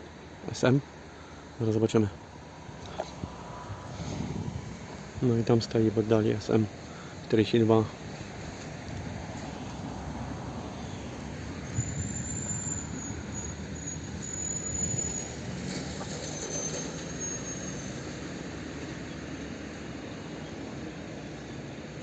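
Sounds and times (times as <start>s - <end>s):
train rumbling on rails: 2.1s - 22.0s
high wheel squeal: 10.4s - 19.1s.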